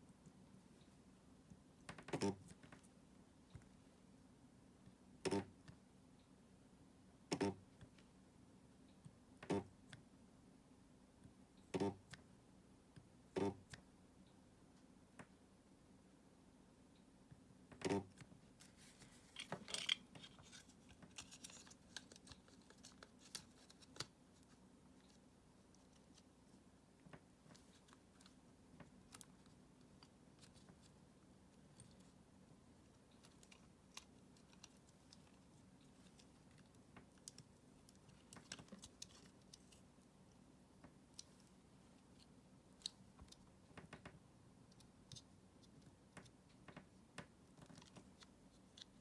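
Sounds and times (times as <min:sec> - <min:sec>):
small hard parts clicking: 0:19.4 - 0:24.1.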